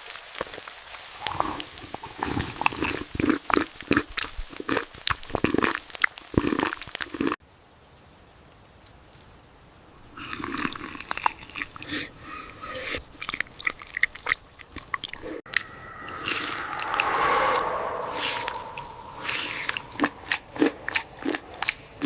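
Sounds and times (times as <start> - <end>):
wet chewing and smacking: 1.3 - 7.4, 10.2 - 16.6, 19.3 - 22.0.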